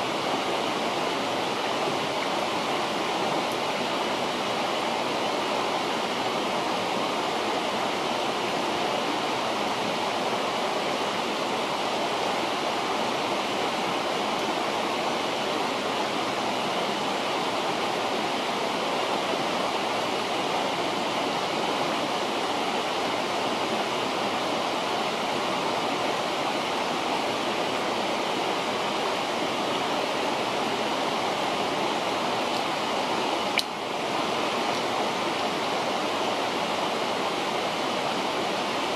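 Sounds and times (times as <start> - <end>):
river rushing: 0.0 - 38.9.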